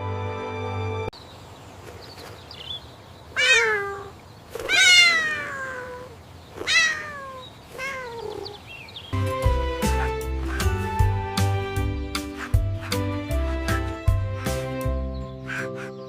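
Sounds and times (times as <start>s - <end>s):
music: 0.0s - 1.1s, 9.2s - 16.0s
cat meowing: 3.4s - 8.6s.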